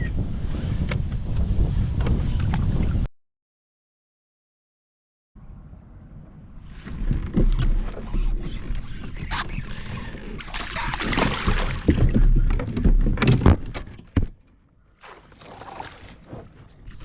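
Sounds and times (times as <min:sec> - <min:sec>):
wind rumbling on microphone: 0:00.0 - 0:03.1, 0:05.8 - 0:14.3
water noise: 0:06.5 - 0:13.7, 0:15.0 - 0:17.0.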